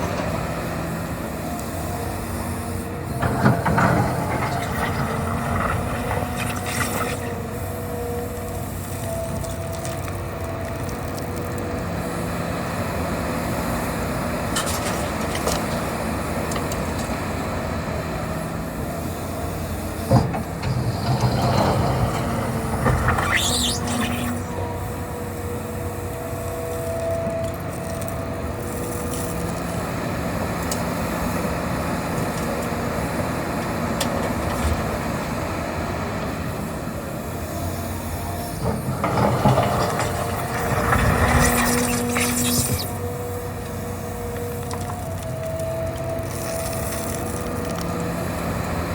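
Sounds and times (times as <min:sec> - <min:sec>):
excavator engine and hydraulics drone: 0:00.0 - 0:48.9
high squeal: 0:20.7 - 0:24.7, 0:38.6 - 0:43.6.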